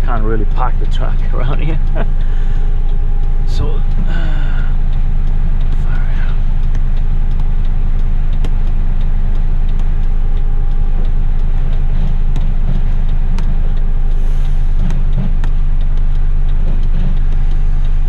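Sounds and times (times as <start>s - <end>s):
diesel truck engine idling: 0.0s - 16.5s
faint clicks: 6.6s - 18.0s.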